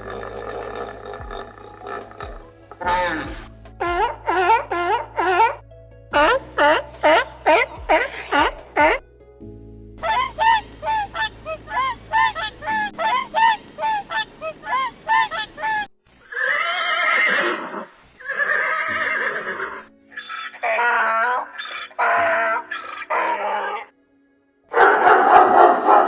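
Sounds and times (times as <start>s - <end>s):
short pitched animal calls: 0.0s - 3.5s, 10.0s - 17.7s
long harsh animal calls: 0.0s - 5.5s, 10.0s - 23.9s.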